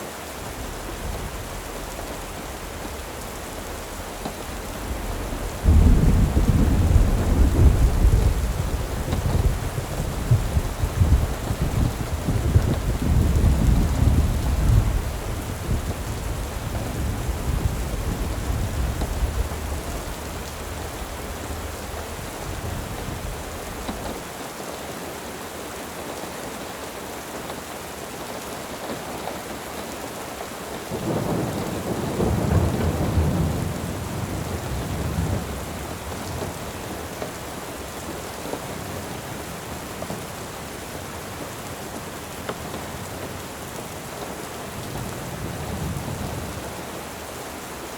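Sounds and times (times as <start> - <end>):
steady rain: 0.0 - 47.9
rolling thunder: 0.5 - 24.2, 30.9 - 37.0.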